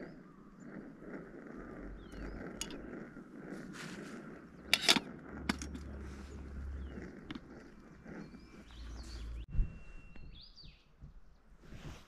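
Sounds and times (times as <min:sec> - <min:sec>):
low outdoor rumble: 0:00.0 - 0:09.5
faint bird chirps: 0:01.5 - 0:03.3, 0:05.8 - 0:12.0.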